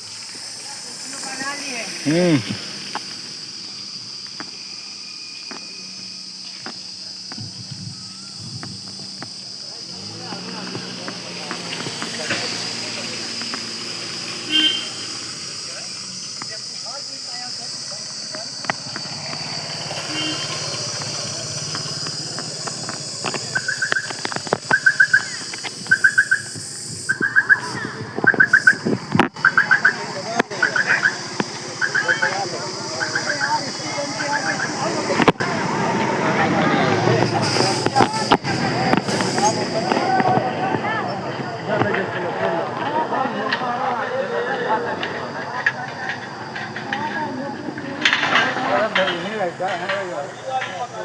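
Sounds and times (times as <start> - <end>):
crickets chirring: 0.0 - 51.0
bird chirping: 17.5 - 35.2
faint clicks: 17.9 - 35.5.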